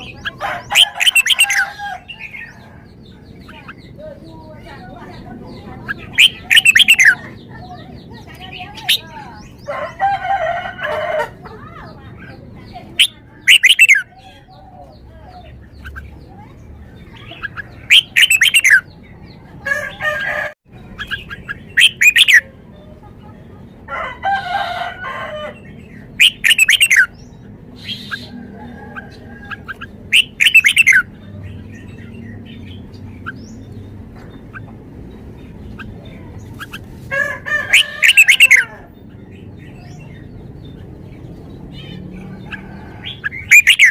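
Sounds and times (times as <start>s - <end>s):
bird whistled song: 6.0s - 7.2s, 13.0s - 14.2s, 17.2s - 18.9s, 20.9s - 22.5s, 26.1s - 28.4s, 29.4s - 33.6s, 37.6s - 38.7s, 41.8s - 43.9s.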